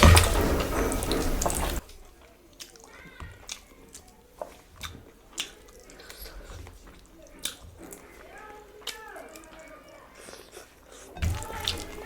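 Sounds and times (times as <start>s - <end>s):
loud rustling: 0.0s - 1.9s
chewing: 0.0s - 12.0s
wet mouth clicks and smacks: 0.0s - 12.0s.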